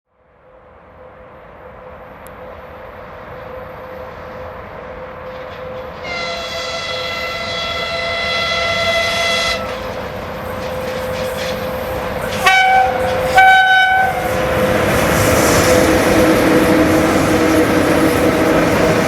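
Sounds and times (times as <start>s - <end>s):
freight train running: 0.2s - 19.0s
locomotive horn blast: 5.3s - 9.8s, 12.3s - 14.4s.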